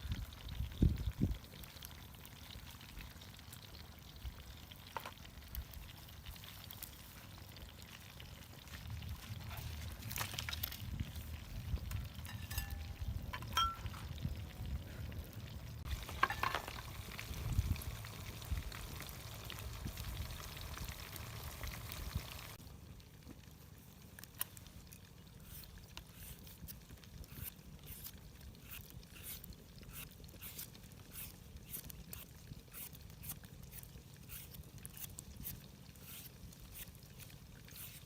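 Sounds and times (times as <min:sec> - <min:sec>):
food sizzling in a pan: 0:15.8 - 0:22.6.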